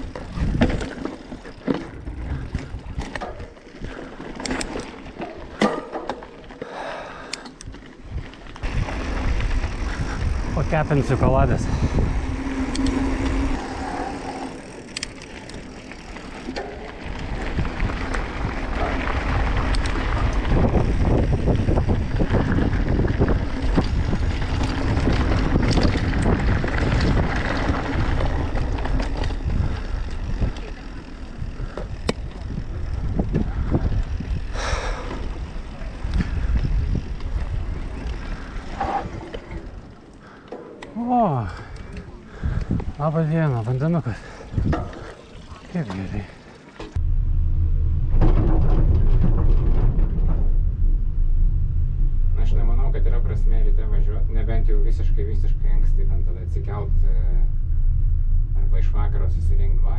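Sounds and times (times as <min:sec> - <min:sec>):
bike rolling noise: 0:00.0 - 0:59.9
brake hum: 0:00.0 - 0:59.9
tyre and wind rumble: 0:00.0 - 0:59.9.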